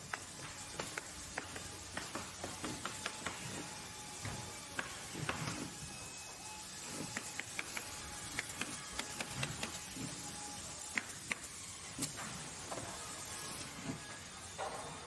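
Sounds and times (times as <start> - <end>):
sharp clicks and knocks: 0.0 - 3.6, 7.0 - 9.8.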